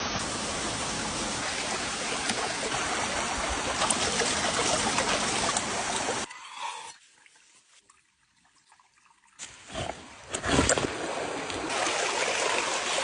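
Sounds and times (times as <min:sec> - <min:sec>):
stream water rushing: 0:00.0 - 0:06.3, 0:09.5 - 0:13.0.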